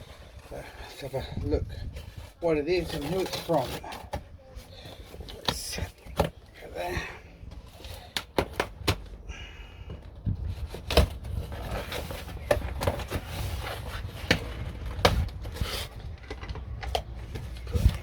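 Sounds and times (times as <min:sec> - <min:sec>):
cardboard tearing scrape: 0:02.8 - 0:06.3, 0:10.6 - 0:16.1
cardboard box knocks and clicks: 0:09.9 - 0:15.6.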